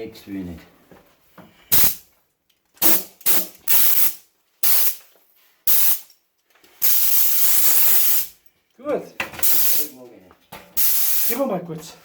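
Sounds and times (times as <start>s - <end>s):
compressed air blow gun blasts: 1.7s - 2.0s, 2.8s - 5.0s, 5.7s - 6.1s, 6.8s - 8.3s, 9.4s - 9.9s, 10.8s - 11.4s.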